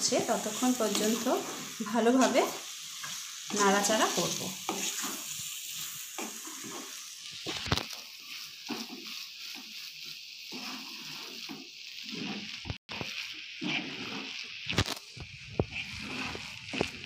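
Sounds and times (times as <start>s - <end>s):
mince sizzling in a pan: 0.0s - 17.0s
spatula scraping a pan: 0.1s - 17.0s.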